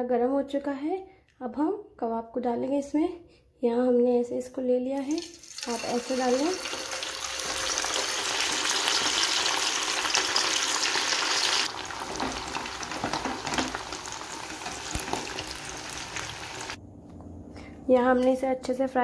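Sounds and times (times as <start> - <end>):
patties sizzling in hot oil: 5.0 - 16.8.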